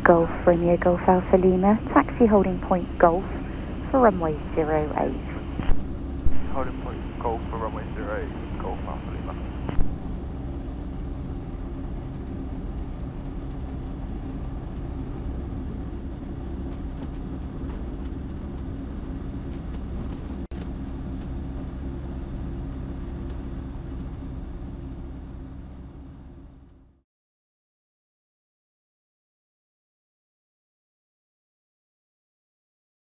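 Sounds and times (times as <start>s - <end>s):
light aircraft engine and propeller: 0.0s - 27.0s.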